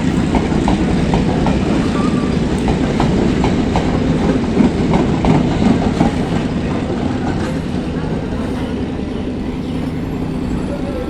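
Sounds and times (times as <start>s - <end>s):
train wheels clicking over rail joints: 0.0s - 8.7s
train low rumble: 0.0s - 11.0s.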